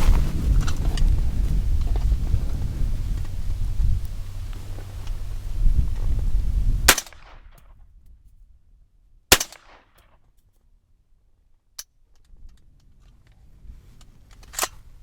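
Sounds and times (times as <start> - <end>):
low rumble: 0.0 - 7.8
rifle shots: 6.9 - 7.5, 9.3 - 10.0.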